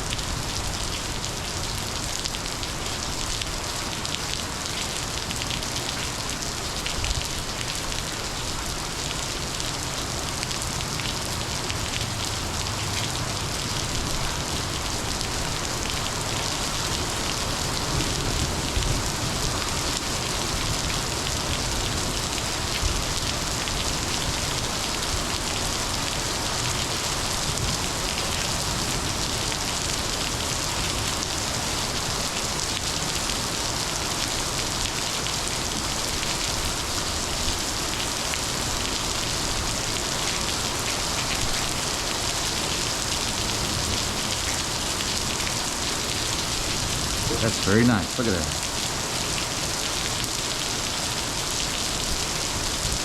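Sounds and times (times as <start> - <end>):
heavy rain hissing: 35.4 - 53.0.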